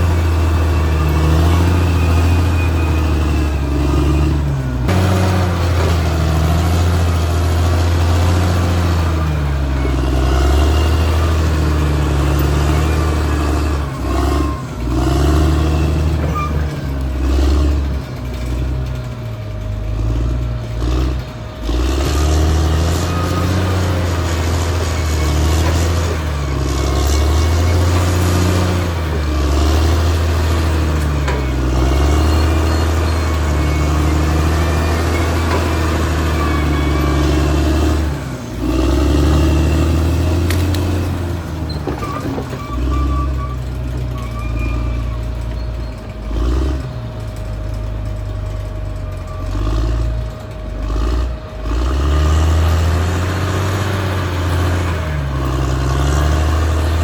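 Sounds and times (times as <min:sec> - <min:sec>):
bulldozer diesel engine working: 0:00.0 - 0:57.0
brief squeaks: 0:41.7 - 0:46.2.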